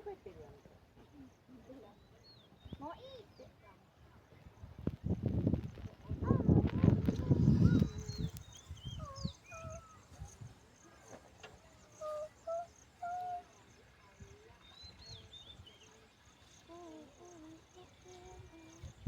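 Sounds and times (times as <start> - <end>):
high insect trill: 7.2 - 19.0
birds whistling: 7.4 - 16.7.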